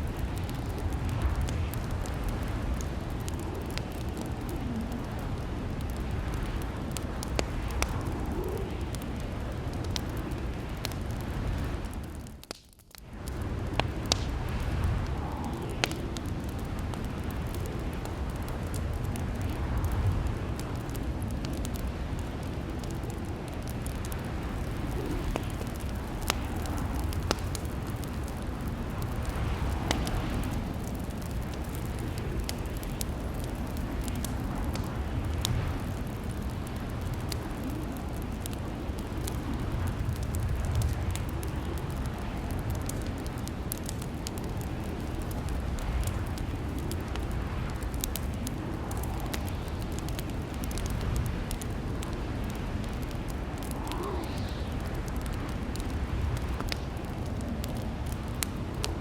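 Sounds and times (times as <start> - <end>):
fireplace crackling: 0.0 - 59.0.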